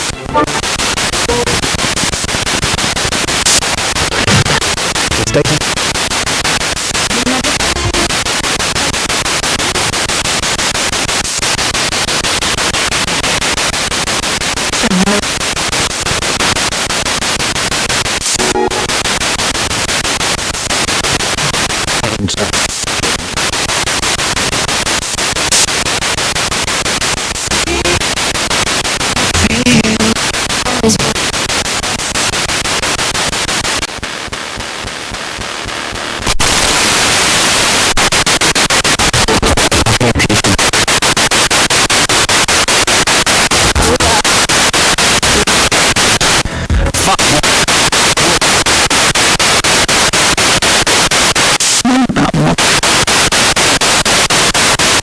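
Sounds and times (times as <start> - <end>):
broadcast music: 0.0 - 2.2, 3.3 - 5.8, 6.9 - 8.9, 18.2 - 19.4, 27.4 - 31.4, 43.6 - 48.2
radio static sweeping: 0.0 - 55.0
broadcast voices: 3.4 - 6.0, 6.8 - 8.2, 14.8 - 15.4, 21.5 - 23.2, 29.1 - 31.8, 39.0 - 40.9, 43.5 - 48.7, 51.4 - 52.8.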